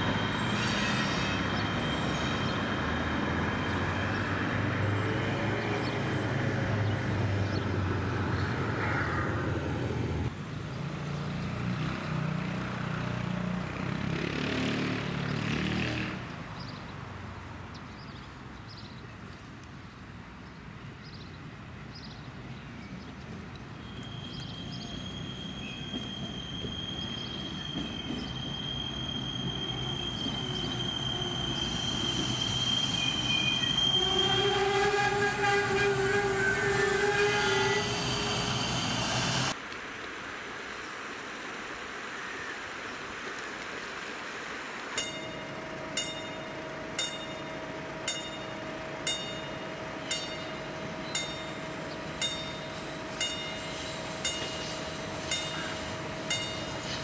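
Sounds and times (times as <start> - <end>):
high wheel squeal: 0.0 - 7.4, 23.8 - 39.6, 47.0 - 57.0
train running past: 0.0 - 11.0, 23.4 - 39.6, 44.3 - 57.0
train horn: 33.0 - 38.4.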